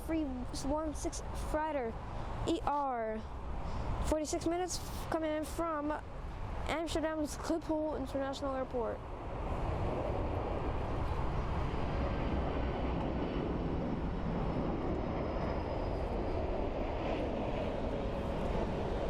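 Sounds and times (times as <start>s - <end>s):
jet engines rushing: 9.0s - 19.0s.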